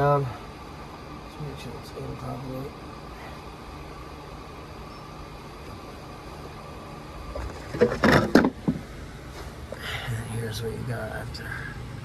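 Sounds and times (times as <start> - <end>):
condensate pump whining: 0.0 - 12.0.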